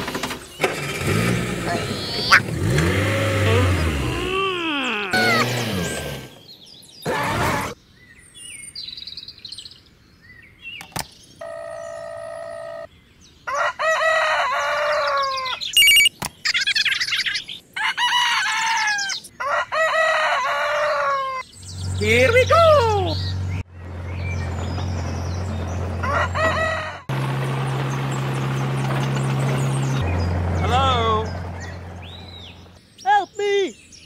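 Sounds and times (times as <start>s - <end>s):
chickens clucking: 1.6s - 2.9s
brief steady tone: 15.8s - 16.1s.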